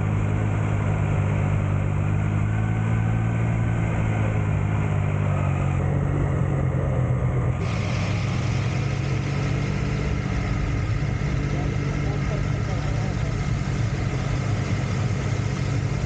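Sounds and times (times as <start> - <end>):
motorcycle engine running: 0.0 - 16.0
hiss: 7.6 - 16.0.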